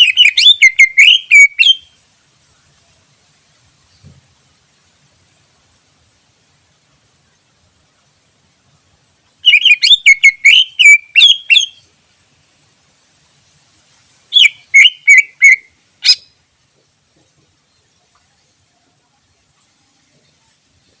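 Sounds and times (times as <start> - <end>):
bird singing chattering whistles: 0.0 - 2.0, 9.4 - 11.9, 14.3 - 16.4.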